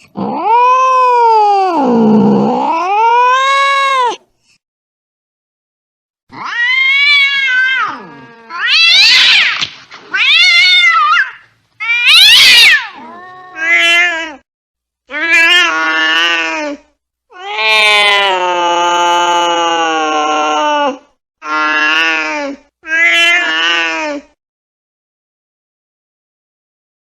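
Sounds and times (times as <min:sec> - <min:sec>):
cat yowling angrily: 0:00.2 - 0:04.2, 0:06.3 - 0:14.4, 0:15.1 - 0:24.2.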